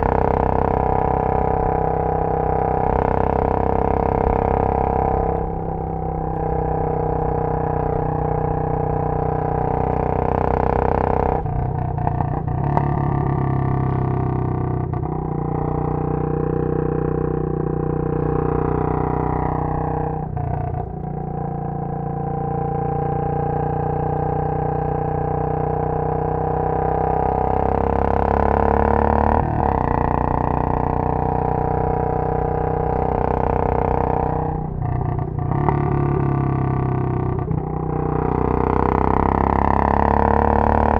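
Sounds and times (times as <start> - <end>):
motorcycle engine exhaust beat: 0.0 - 10.3, 10.9 - 16.6, 29.5 - 39.4.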